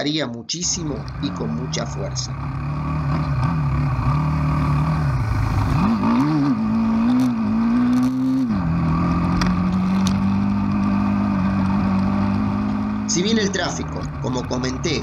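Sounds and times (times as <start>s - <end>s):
motorcycle engine revving: 0.7s - 15.0s.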